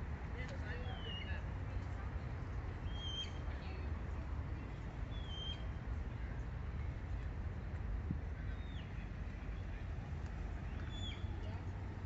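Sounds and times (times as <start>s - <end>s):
bird whistles: 2.8s - 3.4s, 5.1s - 5.7s, 10.8s - 11.3s.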